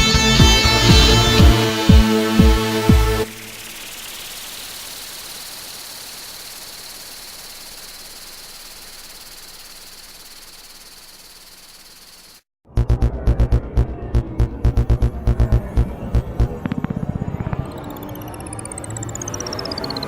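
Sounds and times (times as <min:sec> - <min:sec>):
music with throbbing beat: 0:00.0 - 0:05.0, 0:12.7 - 0:19.2
hiss with high whine: 0:01.2 - 0:12.5.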